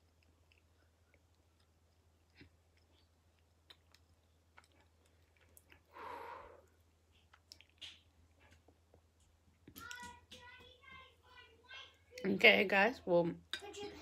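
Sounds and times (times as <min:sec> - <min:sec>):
chewing mouth clicks: 0:00.0 - 0:05.9, 0:07.1 - 0:08.1.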